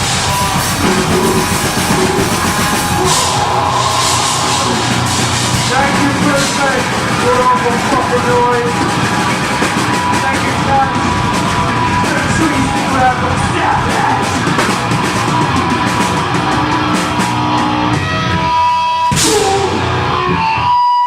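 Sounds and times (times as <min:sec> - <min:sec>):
cymbal crash: 0:00.0 - 0:07.5
yelled vocals: 0:00.0 - 0:18.0
distorted guitars: 0:00.0 - 0:21.0
drums: 0:00.0 - 0:21.0.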